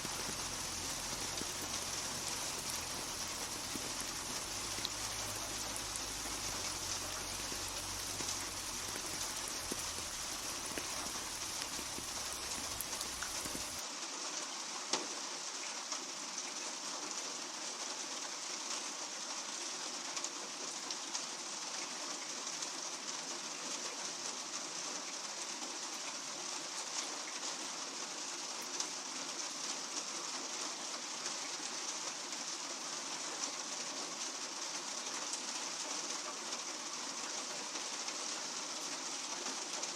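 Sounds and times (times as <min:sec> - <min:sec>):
rain drop ticks: 0:00.0 - 0:13.8
steady rain falling: 0:00.0 - 0:39.9.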